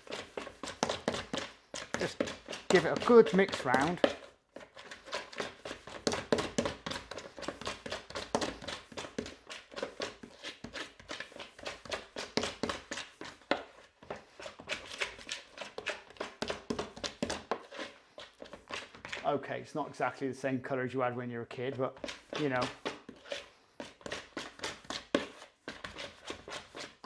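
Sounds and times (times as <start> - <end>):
dough knocking and scraping pot: 0.0 - 19.5, 21.5 - 27.0.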